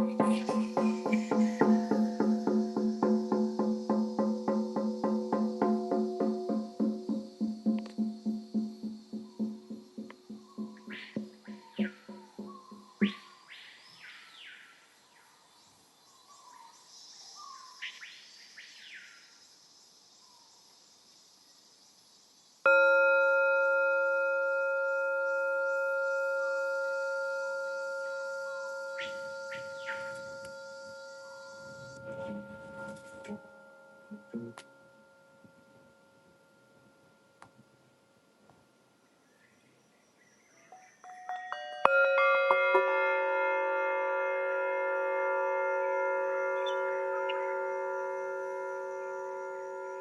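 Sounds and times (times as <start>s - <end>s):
faint high chirps: 0.0s - 14.6s, 22.7s - 42.0s
singing bowl ringing: 22.7s - 38.9s, 40.7s - 50.0s.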